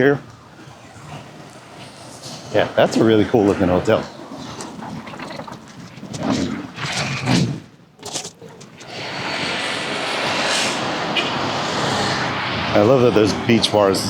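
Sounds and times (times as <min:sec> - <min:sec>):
steady rushing noise: 0:08.7 - 0:14.0.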